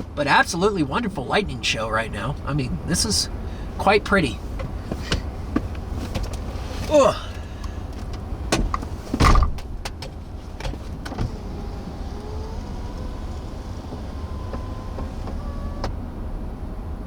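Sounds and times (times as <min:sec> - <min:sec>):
vehicle idling rumble: 0:00.0 - 0:17.0
faint steady tones: 0:11.0 - 0:17.0.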